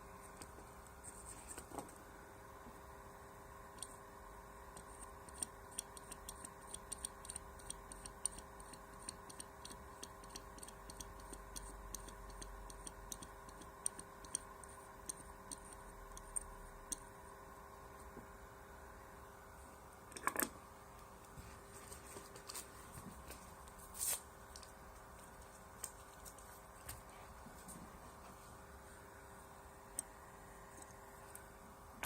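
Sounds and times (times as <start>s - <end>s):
low electrical hum: 0.0s - 32.0s
faint small clicks and ticks: 4.7s - 17.1s.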